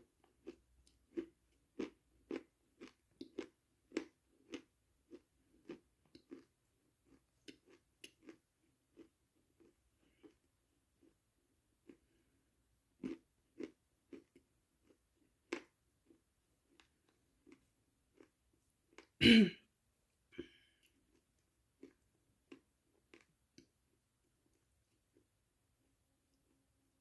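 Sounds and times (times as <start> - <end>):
wet mouth chewing: 0.4 - 8.4.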